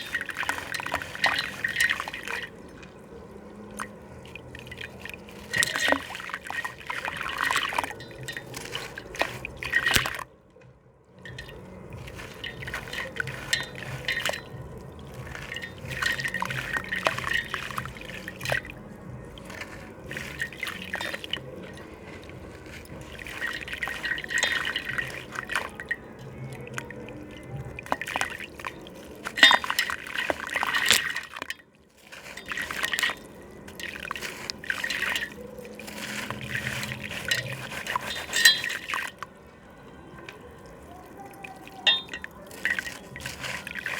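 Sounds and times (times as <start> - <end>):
water dripping and trickling: 0.0 - 43.9
slab crumbling in water: 3.7 - 10.3, 11.2 - 39.3.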